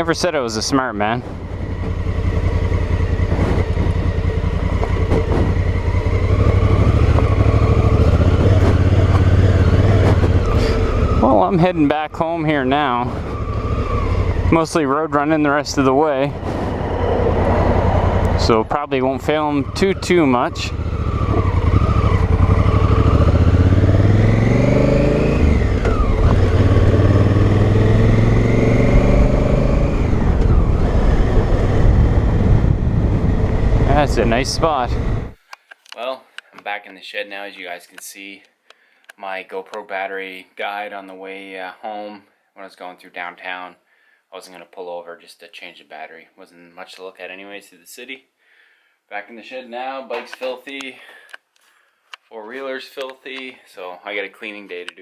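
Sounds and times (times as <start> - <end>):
motorcycle engine running: 1.2 - 35.4.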